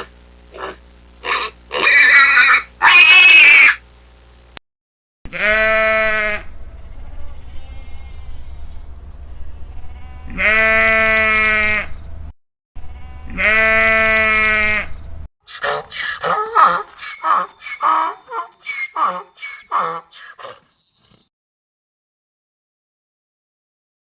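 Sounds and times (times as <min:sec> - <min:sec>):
sheep bleating: 0:05.3 - 0:06.5, 0:07.1 - 0:08.7, 0:09.8 - 0:11.9, 0:12.8 - 0:14.9, 0:15.5 - 0:20.6
low steady rumble: 0:05.3 - 0:15.3.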